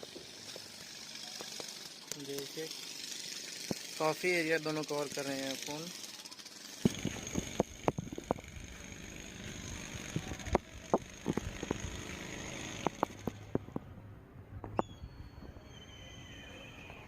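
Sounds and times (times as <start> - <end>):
traffic hum: 0.0 - 17.0
sharp clicks and knocks: 6.8 - 8.5, 10.5 - 11.9, 12.8 - 13.9.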